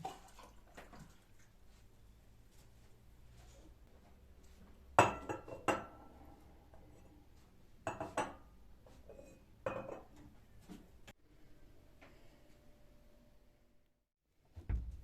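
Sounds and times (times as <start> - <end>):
dishes and cutlery clinking: 5.0 - 6.1, 7.9 - 10.2.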